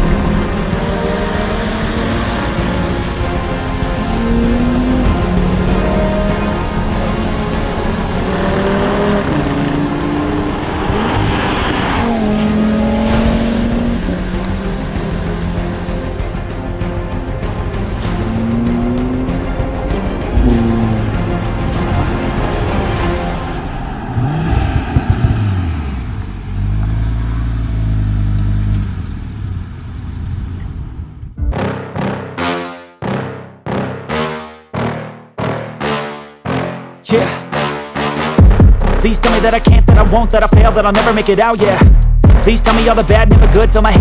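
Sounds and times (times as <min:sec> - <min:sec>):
car engine changing gear: 0:00.0 - 0:31.4.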